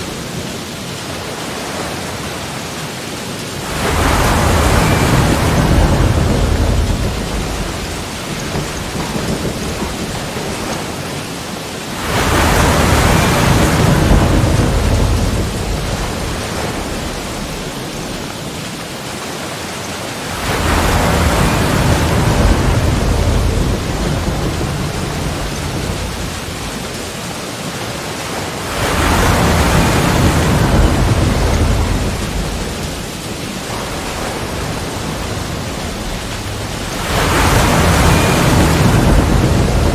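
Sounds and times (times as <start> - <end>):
hiss of foaming water: 0.0 - 39.9
ocean waves breaking: 0.0 - 39.9.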